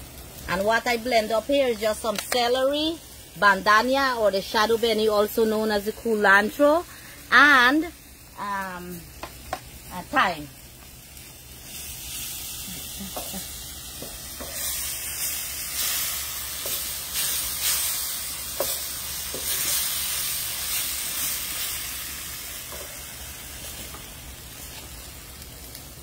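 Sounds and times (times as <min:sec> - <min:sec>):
seasoning sizzling in oil: 0:00.0 - 0:26.0
wooden spoon scraping a pan: 0:14.0 - 0:14.9.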